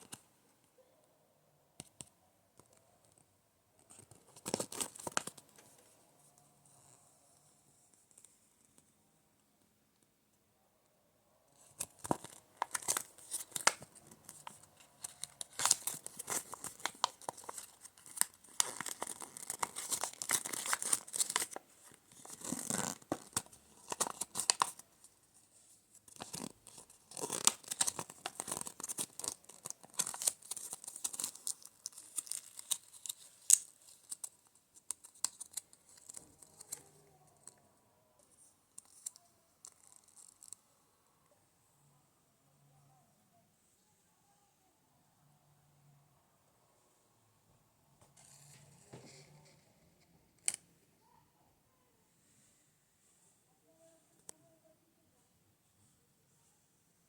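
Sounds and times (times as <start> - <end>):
packaging tearing and crinkling: 11.8 - 21.6, 22.2 - 24.8, 26.1 - 34.4.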